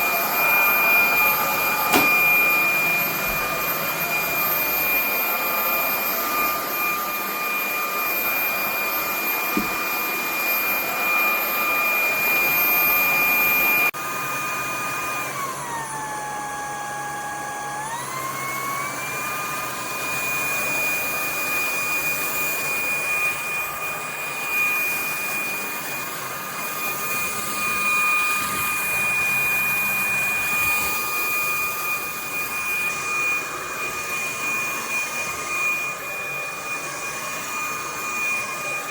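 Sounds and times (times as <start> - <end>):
vacuum cleaner motor whine: 0.0 - 38.9.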